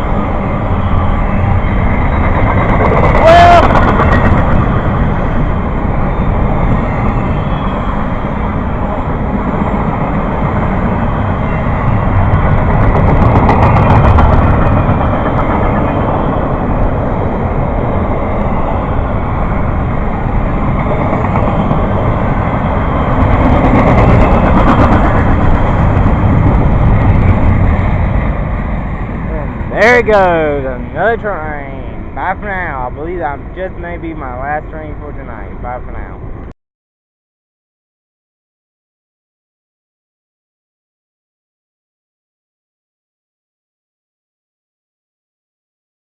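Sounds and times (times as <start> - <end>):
train wheels rumbling on rails: 0.0 - 36.5.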